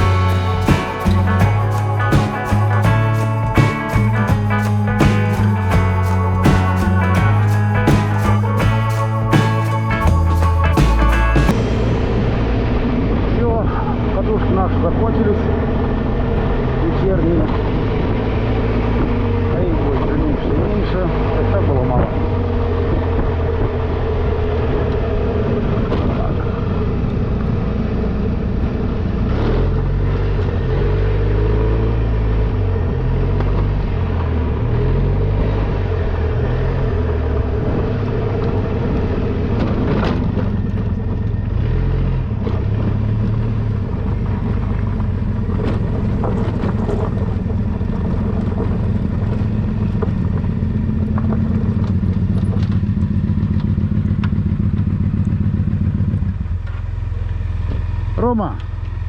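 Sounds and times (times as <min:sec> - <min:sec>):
steady rushing noise: 0:00.0 - 0:16.3.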